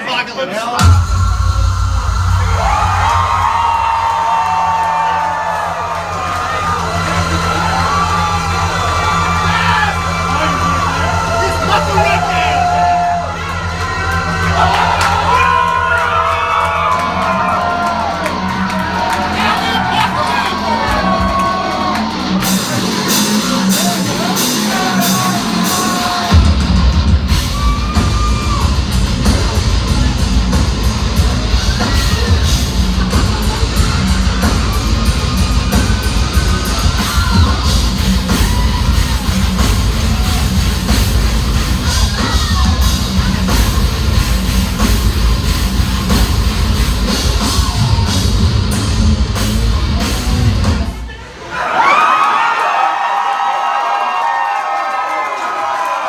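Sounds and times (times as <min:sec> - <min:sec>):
heavy metal band playing: 0:00.6 - 0:51.2
heavy drums: 0:00.7 - 0:51.3
distorted guitar: 0:00.8 - 0:04.3, 0:22.0 - 0:50.9.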